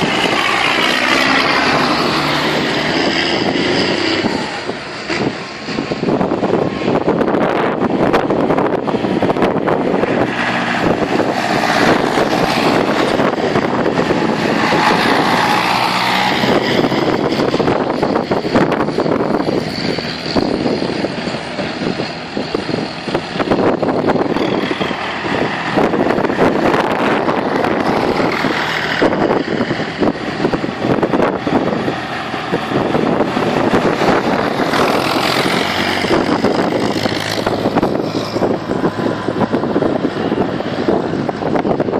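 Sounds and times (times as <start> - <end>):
tractor engines running: 0.0 - 41.9.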